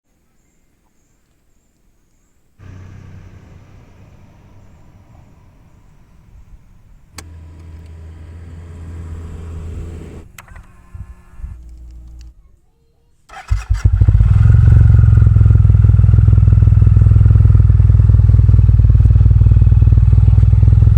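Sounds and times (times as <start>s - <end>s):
motorcycle engine idling: 2.6s - 10.4s, 13.3s - 20.9s.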